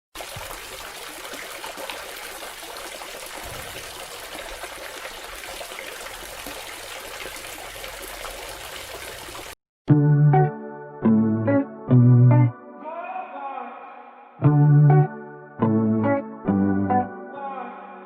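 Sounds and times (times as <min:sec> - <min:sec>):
water trickling in fountain: 0:00.2 - 0:09.6.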